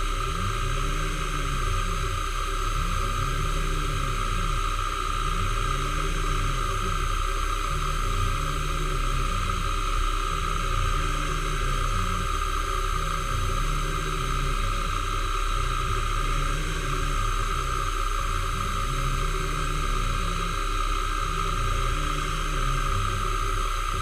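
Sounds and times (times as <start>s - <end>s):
machine tool whining: 0.0s - 24.0s.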